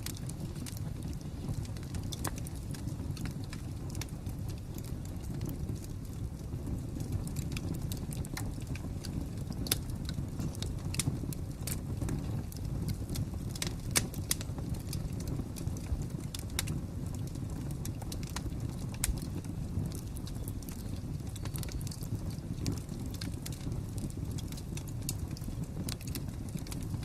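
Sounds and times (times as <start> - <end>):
low rumble of burning: 0.0 - 27.0
wood fire crackling: 0.0 - 27.0.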